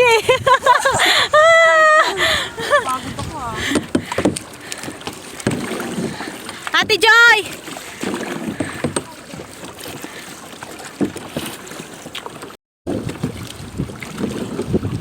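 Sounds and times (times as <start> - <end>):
wind noise on microphone: 0.0 - 4.4, 12.9 - 15.0
water splashing around a kayak: 0.0 - 15.0.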